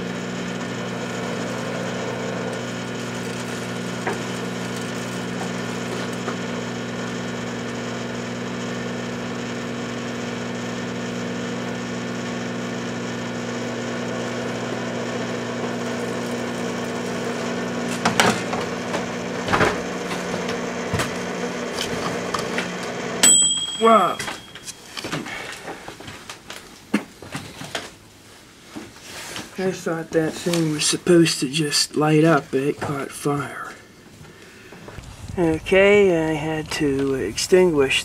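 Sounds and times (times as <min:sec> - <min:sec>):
microwave oven humming: 0:00.0 - 0:26.4.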